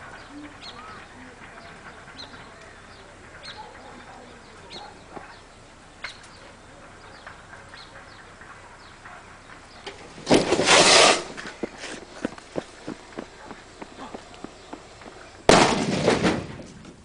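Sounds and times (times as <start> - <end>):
firecracker blast: 15.4 - 16.8.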